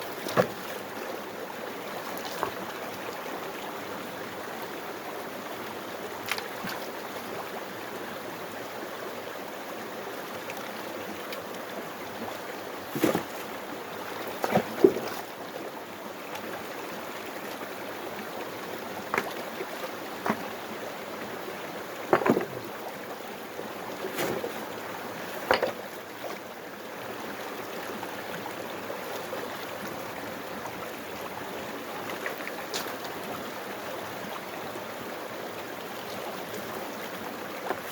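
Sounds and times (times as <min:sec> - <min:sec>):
water rushing through sluice box: 0:00.0 - 0:37.9
sharp knocks and scrapes: 0:12.9 - 0:13.4, 0:20.2 - 0:20.5, 0:22.1 - 0:22.7, 0:24.1 - 0:24.6, 0:25.4 - 0:25.8.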